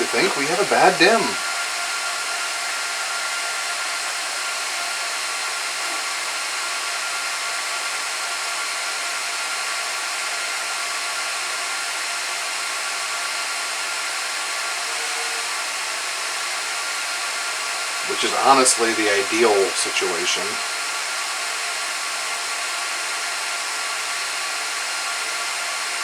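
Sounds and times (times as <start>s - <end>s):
server cooling fans rushing: 0.0s - 6.6s, 17.2s - 20.6s
faint steady fan whines: 0.0s - 26.0s.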